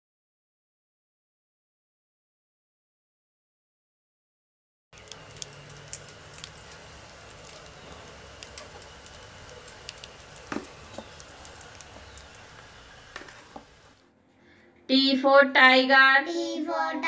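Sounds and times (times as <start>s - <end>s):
rodents scurrying in a box: 5.0s - 13.8s.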